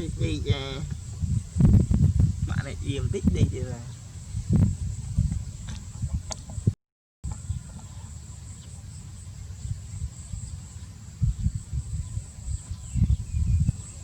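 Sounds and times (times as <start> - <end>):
low rumbling: 0.0 - 6.8.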